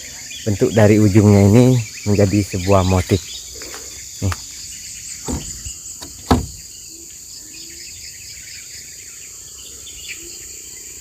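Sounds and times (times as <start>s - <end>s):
crickets and insects chirring: 0.0s - 11.0s
dull thumps: 5.2s - 6.7s.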